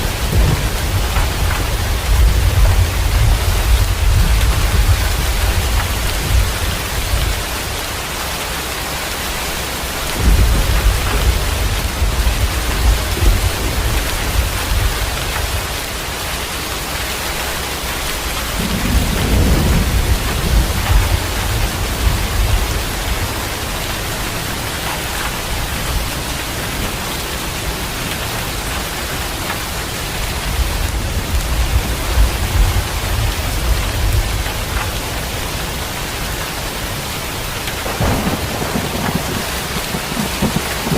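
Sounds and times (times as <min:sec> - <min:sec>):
rolling thunder: 0:00.0 - 0:07.6, 0:10.0 - 0:15.8, 0:18.2 - 0:27.3, 0:30.2 - 0:35.8, 0:37.8 - 0:40.9
heavy rain: 0:00.0 - 0:40.9.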